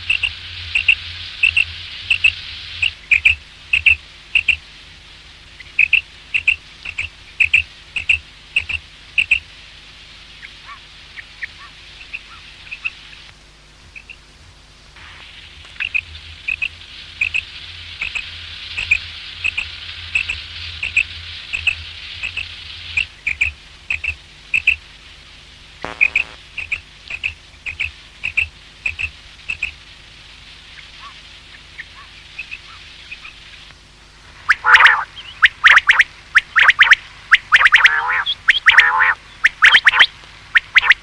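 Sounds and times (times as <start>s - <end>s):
steady hiss: 0.0s - 41.0s
quail calling: 5.8s - 9.4s, 10.4s - 13.0s, 15.8s - 18.2s, 18.8s - 24.8s, 34.5s - 41.0s
brief buzzy sound: 25.8s - 26.4s.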